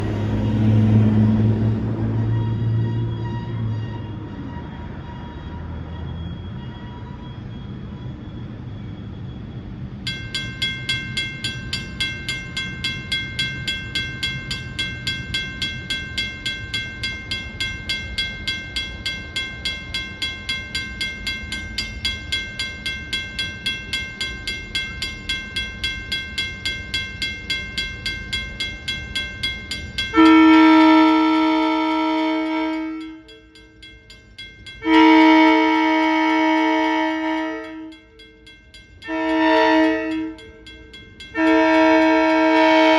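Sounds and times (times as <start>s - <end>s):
crossing bell ringing: 0.0s - 42.9s
train rumble: 0.0s - 42.9s
train horn blasts: 0.1s - 7.4s, 30.1s - 33.3s, 34.8s - 38.0s, 39.0s - 40.5s, 41.3s - 42.9s.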